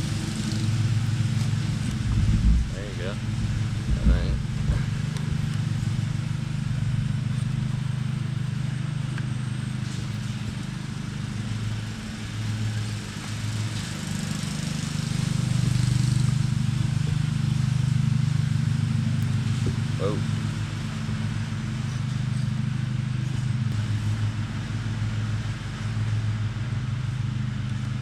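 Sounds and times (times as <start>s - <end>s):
low pulsing motor drone: 0.0s - 28.0s.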